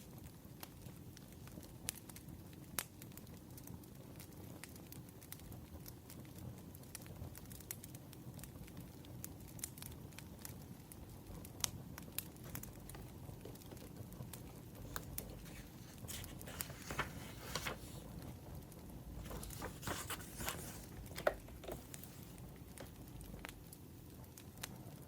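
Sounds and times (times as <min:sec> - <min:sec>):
burning firewood crackling: 0:05.8 - 0:25.0.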